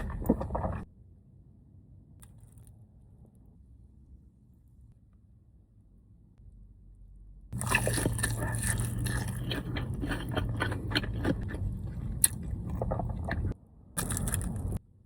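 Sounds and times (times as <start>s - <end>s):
crunching fried food: 7.6s - 14.8s.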